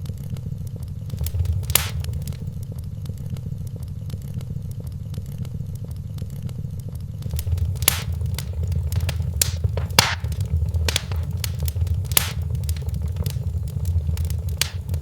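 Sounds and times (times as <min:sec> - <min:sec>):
fire crackling ticks: 0:01.1 - 0:02.5, 0:07.2 - 0:15.0
fire pops: 0:01.1 - 0:02.5, 0:07.2 - 0:15.0
fire low rumble: 0:01.1 - 0:02.6, 0:07.2 - 0:15.0.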